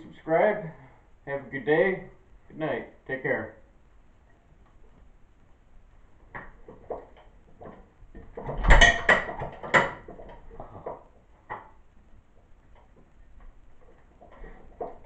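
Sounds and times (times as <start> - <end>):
metal clicks and knocks: 6.3 - 11.8.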